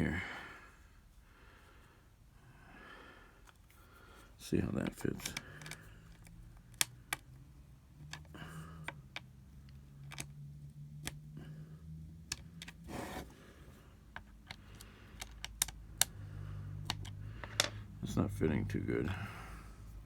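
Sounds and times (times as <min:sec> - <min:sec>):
low steady hum: 0:00.0 - 0:20.0
screwdriver and bits clicking: 0:04.8 - 0:07.3, 0:14.2 - 0:16.2, 0:16.8 - 0:17.7.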